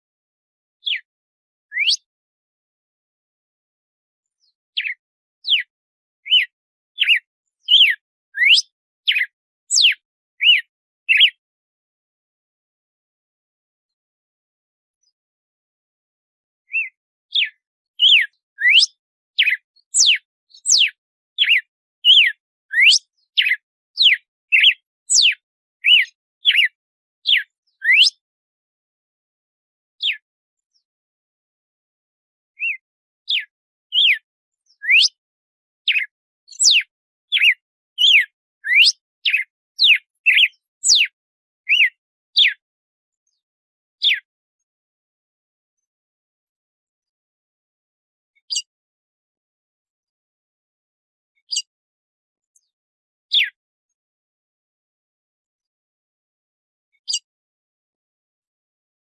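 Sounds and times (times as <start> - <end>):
bird whistling song: 0.8 - 1.1, 1.7 - 2.1, 4.3 - 11.4, 16.7 - 28.2, 30.0 - 30.9, 32.6 - 35.2, 35.9 - 42.6, 44.0 - 44.3, 51.4 - 51.7, 53.3 - 53.6.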